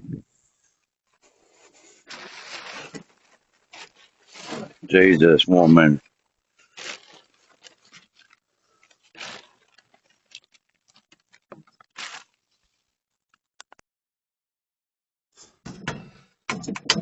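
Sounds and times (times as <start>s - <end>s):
soft rustling swishes: 1.6s - 5.9s.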